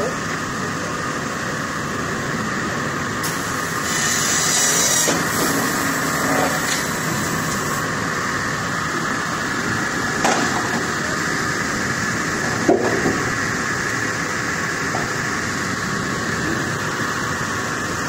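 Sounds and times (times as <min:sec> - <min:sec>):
cutting machine running: 0:03.2 - 0:14.2.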